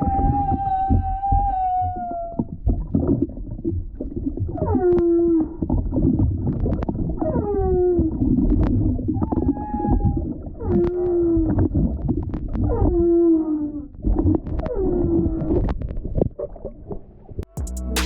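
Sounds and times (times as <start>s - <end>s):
whale song: 0.0s - 2.6s, 4.5s - 5.7s, 9.1s - 11.8s
underwater water noise: 0.0s - 17.4s.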